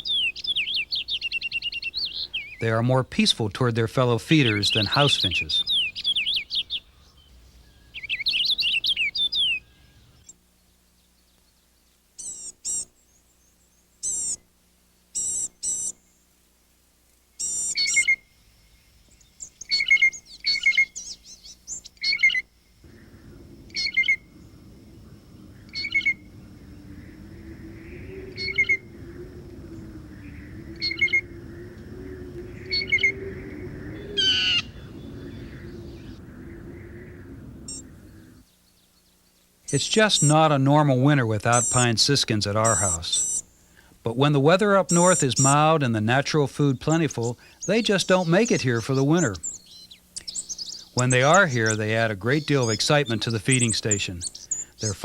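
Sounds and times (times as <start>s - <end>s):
small birds chirping: 0.0s - 55.0s
steady background noise: 0.0s - 55.0s.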